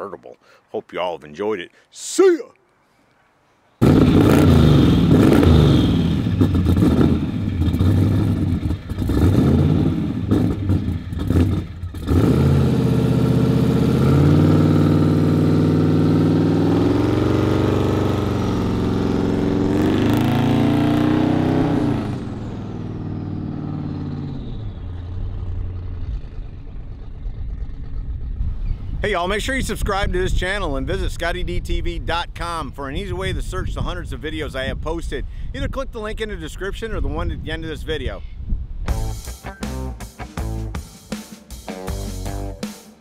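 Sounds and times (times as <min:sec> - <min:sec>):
car engine revving and driving off: 0:03.8 - 0:28.9.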